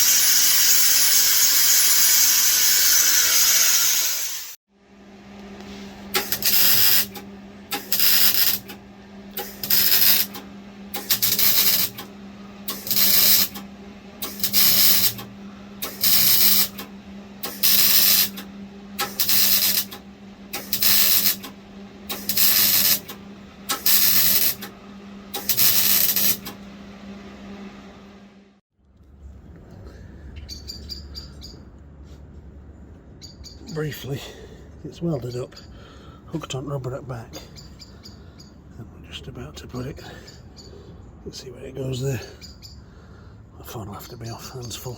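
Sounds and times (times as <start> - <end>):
welding hiss bursts: 0.0 - 4.6, 6.1 - 8.8, 9.4 - 12.1, 12.7 - 13.6, 14.2 - 18.4, 19.0 - 21.5, 22.1 - 24.7, 25.3 - 26.5
steady low hum: 4.7 - 44.9.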